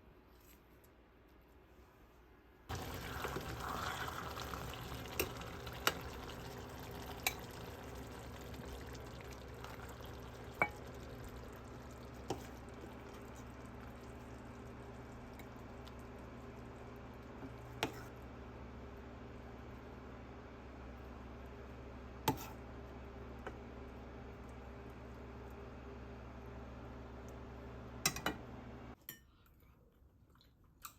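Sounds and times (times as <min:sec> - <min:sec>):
food sizzling in a frying pan: 0:02.7 - 0:16.5.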